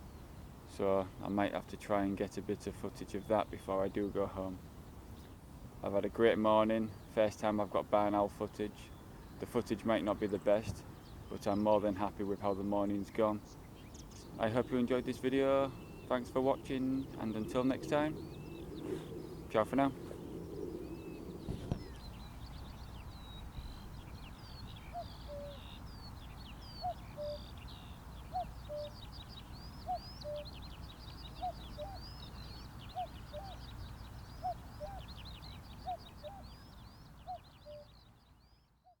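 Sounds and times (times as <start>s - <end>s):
small songbirds singing: 0.0s - 39.0s
cuckoo calling: 13.8s - 38.0s.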